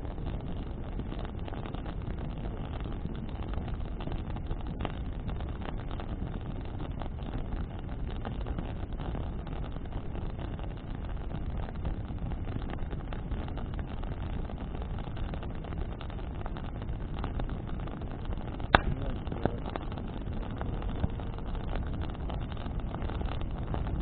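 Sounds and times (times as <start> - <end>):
bonfire burning in wind: 0.0 - 24.0
fire crackles: 0.0 - 24.0
sharp pop: 18.6 - 19.8.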